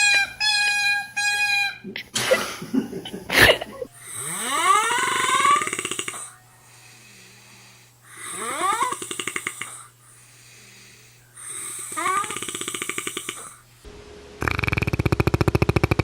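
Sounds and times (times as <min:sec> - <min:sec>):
snore-like rattling call: 0:04.0 - 0:06.4, 0:07.1 - 0:10.3, 0:11.4 - 0:13.6.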